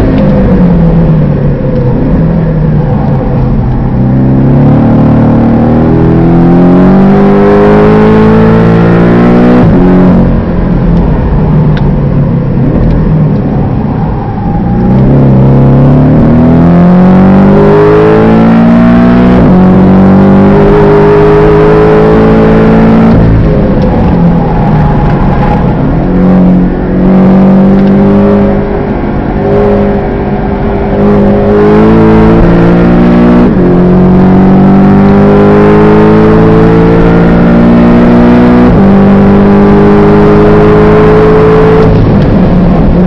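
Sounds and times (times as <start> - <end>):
car engine accelerating: 0.0 - 43.0.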